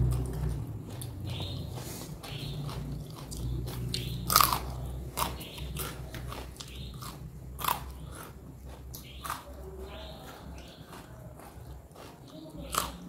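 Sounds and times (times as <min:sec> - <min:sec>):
person chewing crunchy food: 0:00.0 - 0:13.0.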